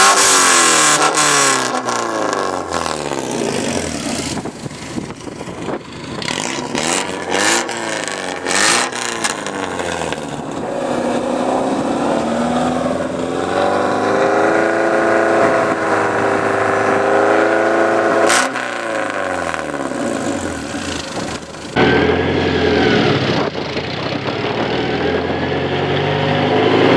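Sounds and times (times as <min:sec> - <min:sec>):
car engine revving: 0:00.0 - 0:26.9.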